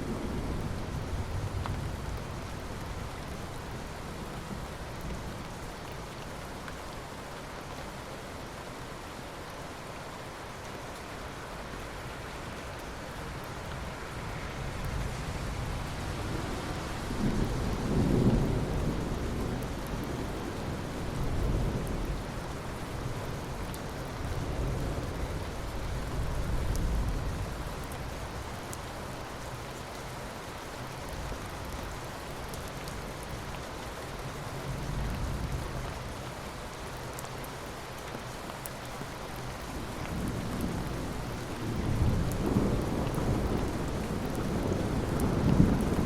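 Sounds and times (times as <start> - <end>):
heavy rain falling: 0.0 - 46.0
low thunder rumbling: 39.8 - 46.0.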